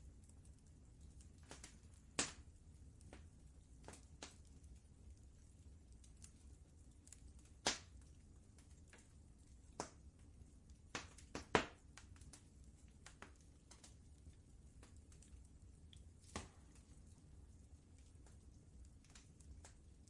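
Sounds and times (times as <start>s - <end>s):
low steady rumble: 0.0s - 20.0s
wood fire crackling: 0.0s - 20.0s
sharp pops of fire: 1.4s - 2.5s, 3.8s - 4.5s, 7.0s - 8.1s, 9.7s - 10.1s, 10.9s - 14.0s, 16.2s - 17.0s.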